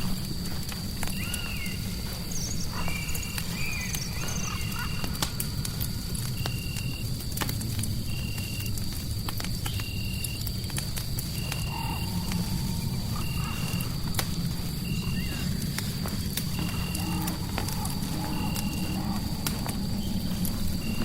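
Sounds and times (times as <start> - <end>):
fireplace crackling: 0.0 - 21.0
wavering gliding calls: 16.4 - 21.0.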